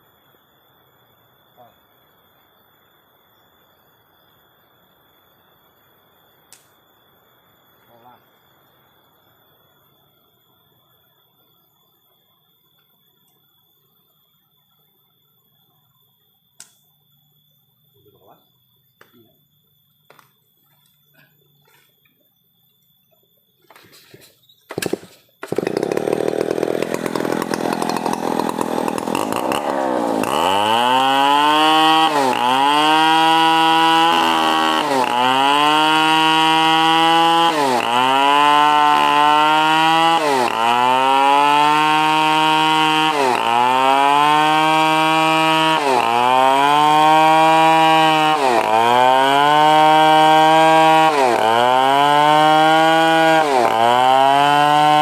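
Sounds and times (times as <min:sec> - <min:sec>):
chainsaw cutting under load: 0:24.7 - 0:55.0.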